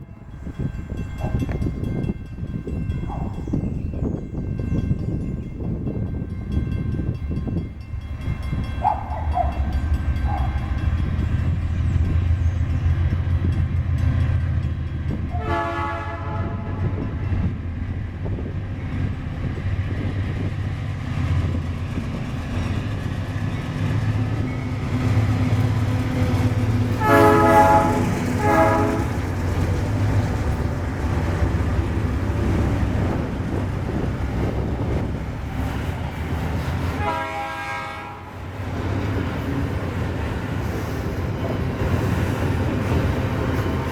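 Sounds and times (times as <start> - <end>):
locomotive engines rumbling: 0.0 - 43.9
train air horn blasts: 15.3 - 17.1, 26.9 - 29.4, 36.9 - 38.4.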